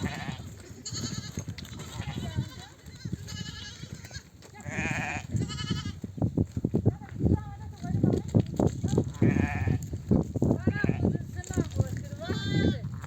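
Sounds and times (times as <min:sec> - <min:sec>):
sheep bleating: 0:00.0 - 0:06.0, 0:09.2 - 0:09.8, 0:12.2 - 0:12.9.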